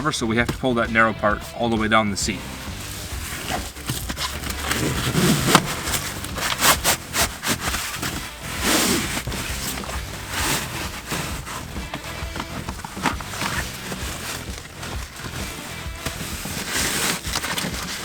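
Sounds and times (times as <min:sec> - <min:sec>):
cloth scraping against upholstery: 0:01.8 - 0:18.0.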